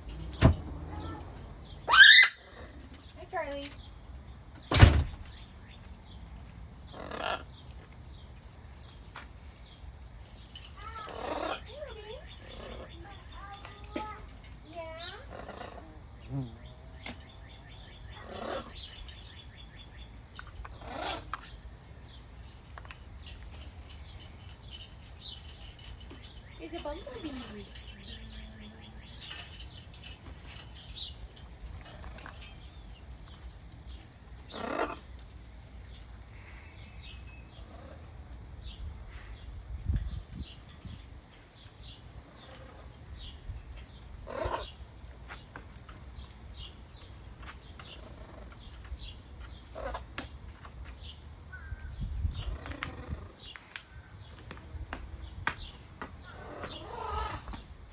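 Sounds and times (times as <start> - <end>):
birds chirping: 0.0 - 57.9
bird squawks: 1.8 - 2.7
wind rumble on microphone: 38.6 - 41.4, 51.5 - 57.9.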